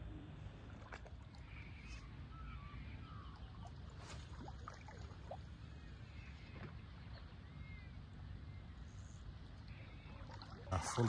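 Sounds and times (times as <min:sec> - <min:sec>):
water lapping at shoreline: 0:00.3 - 0:11.0
faint short bird calls: 0:01.4 - 0:04.4.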